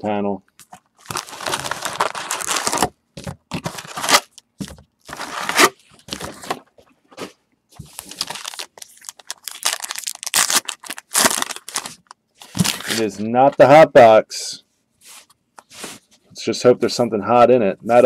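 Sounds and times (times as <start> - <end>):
wrappers tearing and crinkling: 1.0 - 2.9, 3.6 - 4.4, 5.0 - 6.4, 7.9 - 13.1.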